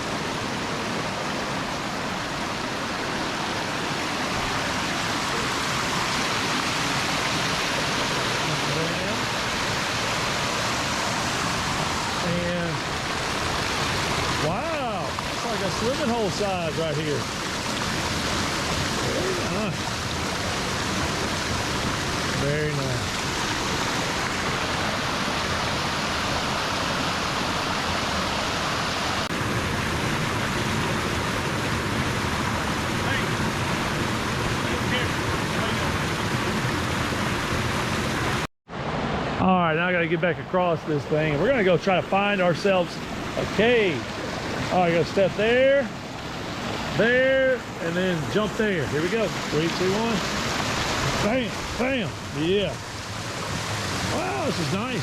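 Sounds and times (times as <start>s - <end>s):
water pouring over waterfall: 4.0s - 38.4s, 48.0s - 55.0s.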